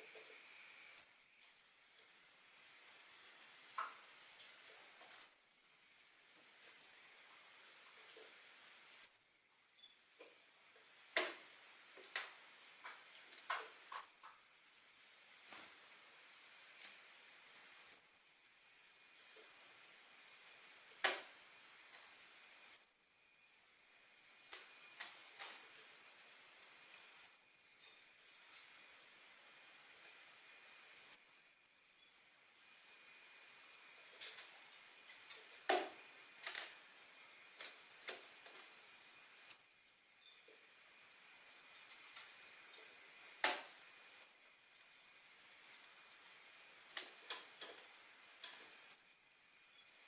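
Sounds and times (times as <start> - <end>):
faint steady high tone: 0.5 - 7.4, 21.6 - 50.0.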